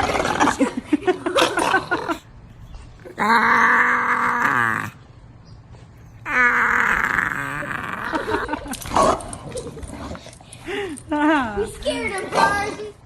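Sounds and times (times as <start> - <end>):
dog howling: 3.0 - 5.0, 6.0 - 8.6.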